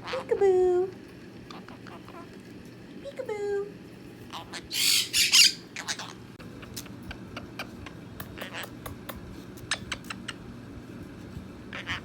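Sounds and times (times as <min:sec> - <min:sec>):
parrot squawk: 0:04.3 - 0:06.2, 0:08.4 - 0:08.8, 0:11.7 - 0:12.0
soft beak clicks: 0:08.2 - 0:10.4.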